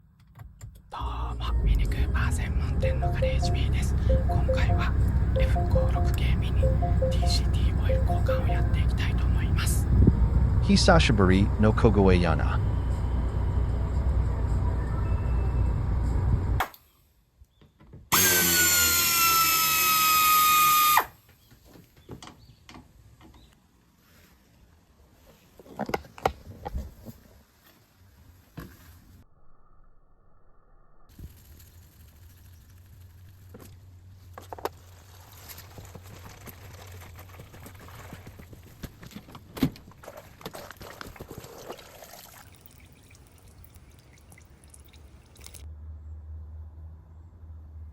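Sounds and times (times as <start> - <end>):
power tool motor whirring: 18.1 - 21.1.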